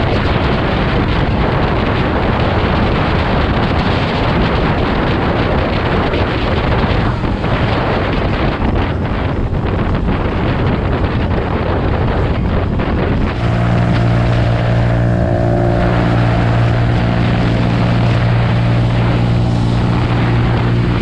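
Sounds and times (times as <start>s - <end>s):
wind buffeting microphone: 0.0s - 21.0s
road noise: 12.6s - 21.0s
motorcycle engine: 12.9s - 21.0s.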